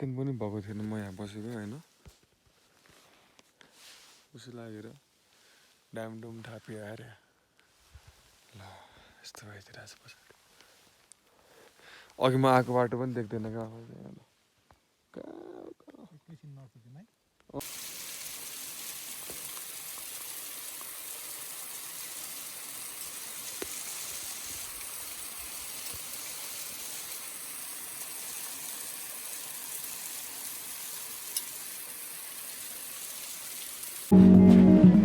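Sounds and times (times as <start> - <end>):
rain hissing: 17.6 - 35.0.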